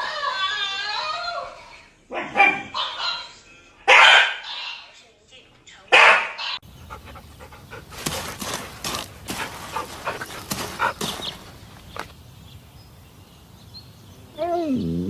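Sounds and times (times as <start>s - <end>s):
animal huffing: 6.6s - 12.1s.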